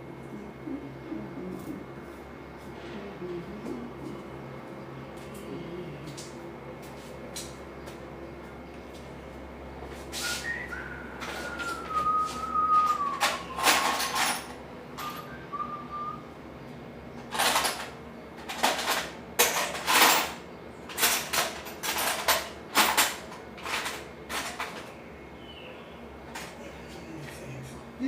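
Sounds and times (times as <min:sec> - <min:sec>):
person whistling: 0:10.2 - 0:13.6, 0:15.0 - 0:16.3.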